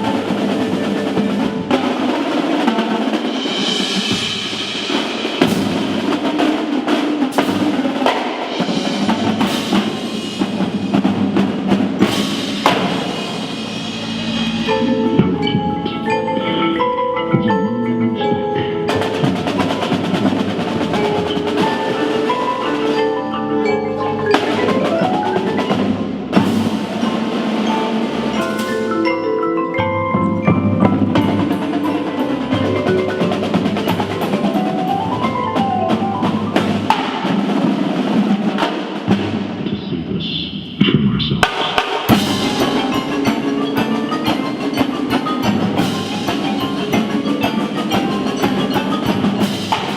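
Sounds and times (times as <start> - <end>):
marimbas: 0.0 - 39.6, 40.5 - 49.9
drums: 0.0 - 49.9.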